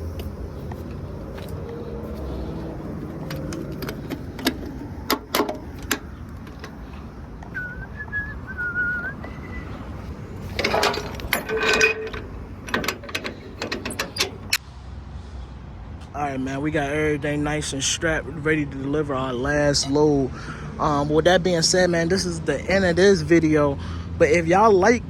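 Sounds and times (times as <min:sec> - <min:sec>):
person whistling: 0:07.6 - 0:09.7.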